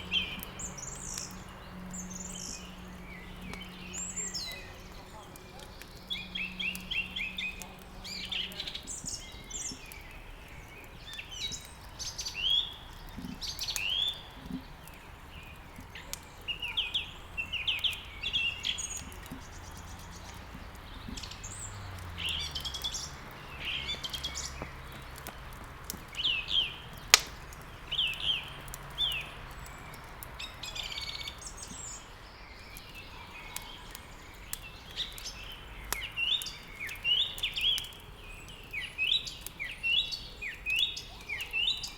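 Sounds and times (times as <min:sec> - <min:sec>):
songbirds chirping: 0:00.0 - 0:41.9
wood fire crackling: 0:00.0 - 0:41.9
fire pop: 0:18.8 - 0:30.4.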